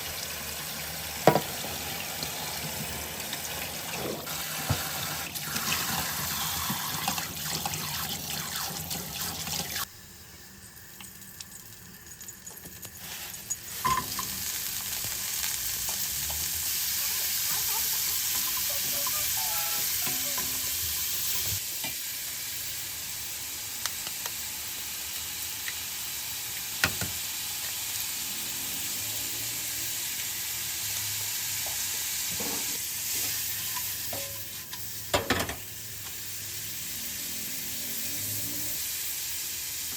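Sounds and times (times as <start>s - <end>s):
water running from a tap: 0.0s - 9.9s, 16.4s - 21.6s
food sizzling in a frying pan: 0.0s - 39.9s.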